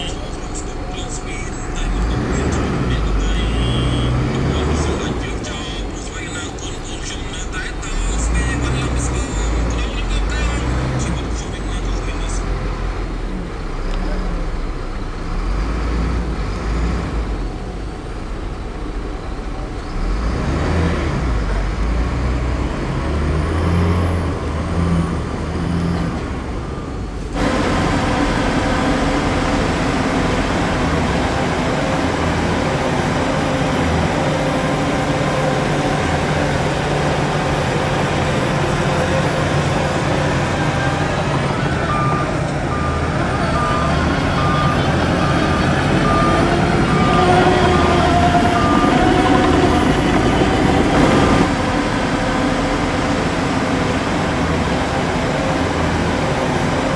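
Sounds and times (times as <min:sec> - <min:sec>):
reversing alarm beeping: 0:00.0 - 0:12.5, 0:26.7 - 0:56.9
heavy diesel machinery engines: 0:00.0 - 0:56.9.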